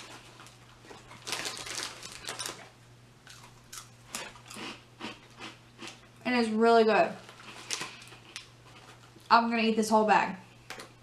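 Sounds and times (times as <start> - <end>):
plastic chip bag crinkling: 0.0 - 6.0, 7.2 - 9.3.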